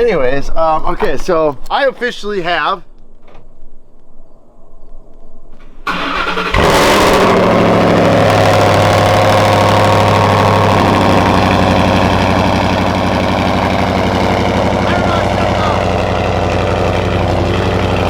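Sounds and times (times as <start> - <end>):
truck engine starting and idling: 5.8 - 18.0.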